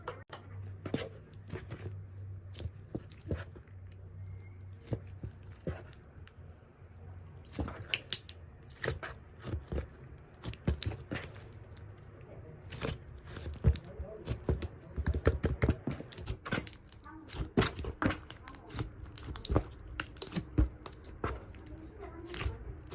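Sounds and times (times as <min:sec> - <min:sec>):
slime crackling and crunching: 0:12.6 - 0:22.9.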